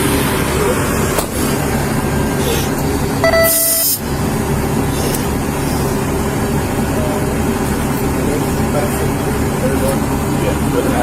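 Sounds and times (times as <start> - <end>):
vehicle engine idling: 0.0 - 11.0
short tone: 3.2 - 4.0.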